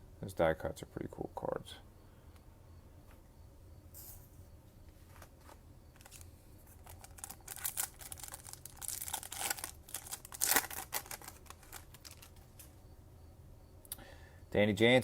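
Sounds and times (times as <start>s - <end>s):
wrapper tearing and crinkling: 6.0s - 12.7s.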